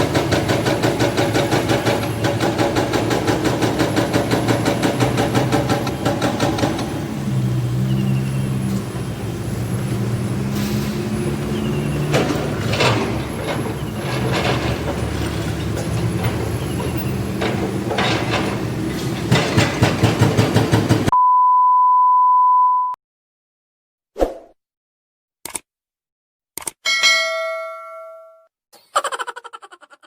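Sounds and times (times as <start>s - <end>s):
hydraulic breaker hammering concrete: 0.0s - 7.2s, 12.1s - 21.1s
excavator diesel engine: 0.0s - 21.1s
high steady beep: 21.1s - 23.0s.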